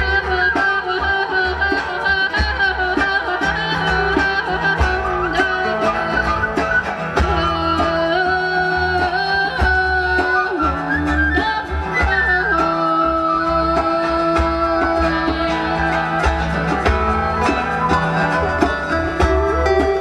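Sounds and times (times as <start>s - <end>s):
bass: 0.0s - 20.0s
guitar: 0.0s - 20.0s
flute melody: 3.0s - 8.8s, 9.7s - 20.0s.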